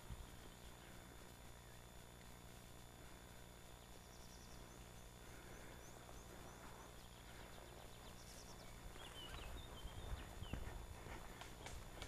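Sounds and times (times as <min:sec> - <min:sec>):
high falling bird chirps: 0:03.6 - 0:10.9.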